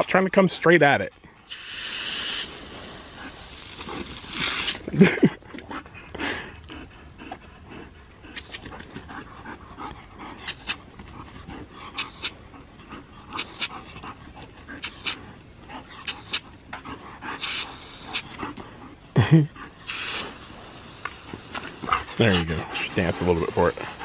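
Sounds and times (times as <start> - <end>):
dog panting: 5.3 - 24.0.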